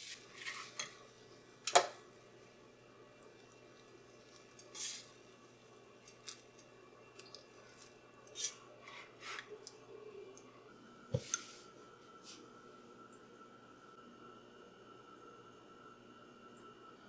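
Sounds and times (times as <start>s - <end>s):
utensils and dishes clicking: 1.6s - 2.0s.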